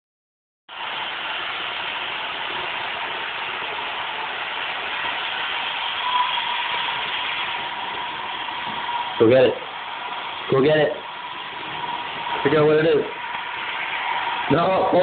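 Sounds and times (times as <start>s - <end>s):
faint constant whine: 0.7s - 15.0s
robot vacuum whirring: 2.4s - 15.0s.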